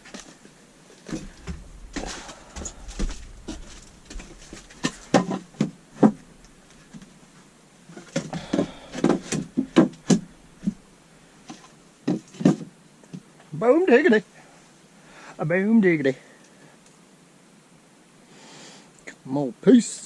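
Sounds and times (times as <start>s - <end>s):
wood pieces knocking and thudding: 1.0s - 7.2s, 7.9s - 10.9s.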